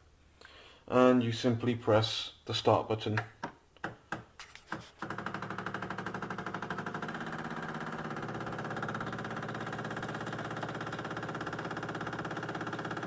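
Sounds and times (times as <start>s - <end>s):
coffee machine pump pulsing: 4.7s - 13.0s.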